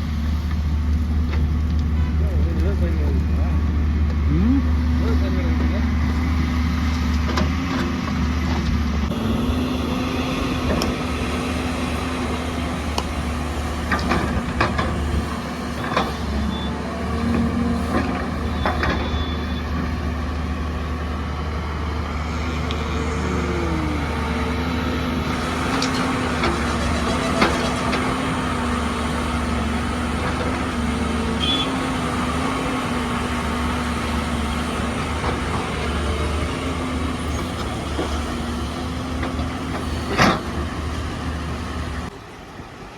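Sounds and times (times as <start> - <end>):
heavy diesel engine running: 0.0 - 42.9
clanks and knocks: 13.9 - 16.2.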